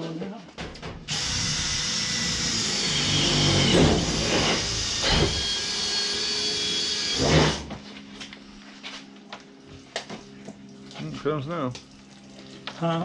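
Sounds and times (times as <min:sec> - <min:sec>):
motor-driven machine running: 0:01.1 - 0:07.7.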